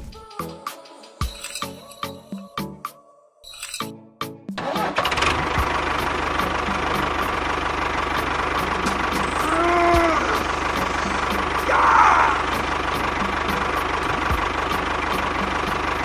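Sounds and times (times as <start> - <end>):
engine idling: 4.6 - 16.0.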